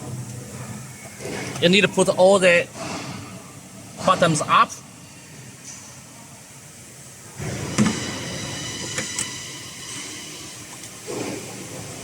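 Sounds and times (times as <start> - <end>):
faint high whine: 4.5 - 12.0
machinery running: 7.2 - 12.0.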